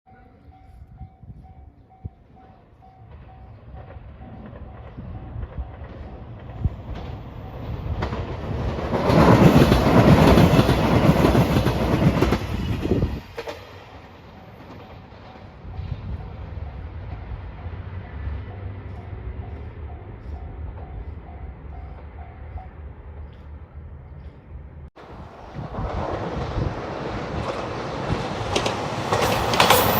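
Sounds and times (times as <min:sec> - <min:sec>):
diesel train passing: 0:00.1 - 0:29.9.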